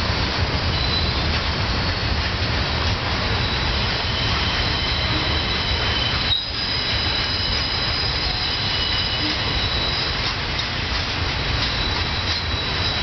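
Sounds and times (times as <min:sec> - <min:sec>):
train wheels rumbling on rail: 0:00.0 - 0:13.0
high-pitched wheel squeal: 0:00.6 - 0:02.2, 0:03.3 - 0:10.4, 0:11.6 - 0:13.0.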